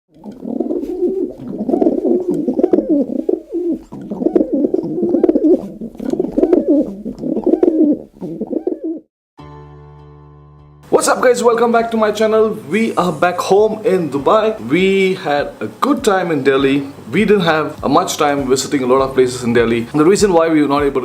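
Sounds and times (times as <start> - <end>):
pigeons cooing: 0.1 - 9.1.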